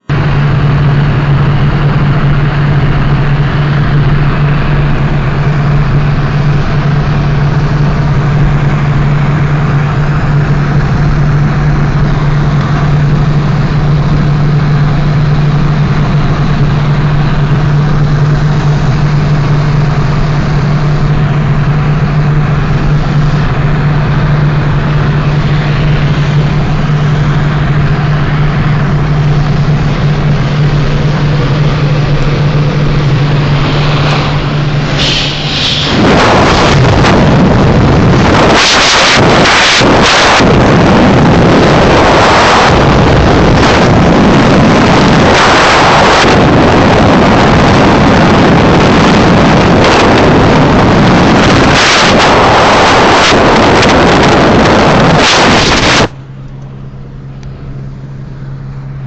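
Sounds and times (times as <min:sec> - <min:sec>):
wind rushing over microphone: 0:00.0 - 0:56.2
engine drone: 0:00.0 - 0:59.0.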